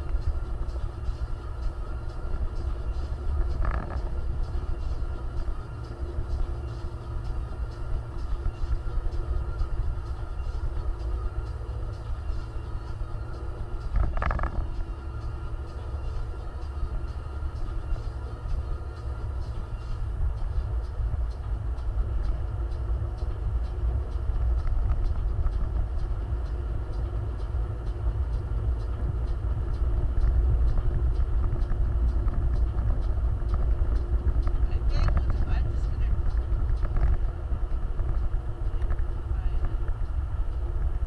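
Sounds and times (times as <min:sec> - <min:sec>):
off-road vehicle rumbling: 0:00.0 - 0:41.0.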